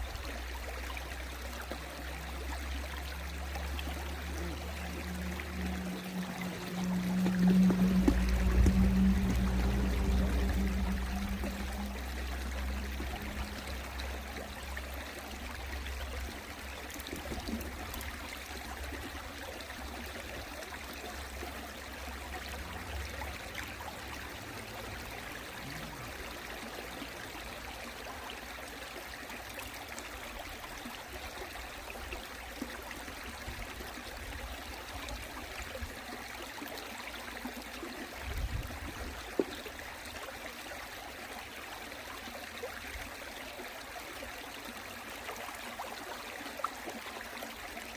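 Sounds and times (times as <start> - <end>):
stream flowing over rocks: 0.0 - 47.9
low rumble: 3.5 - 16.2.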